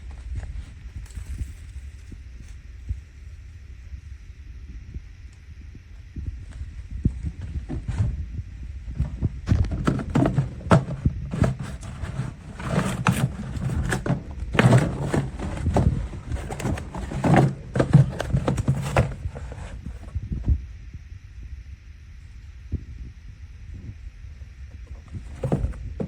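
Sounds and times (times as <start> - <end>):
objects knocking and clattering: 9.0 - 19.7.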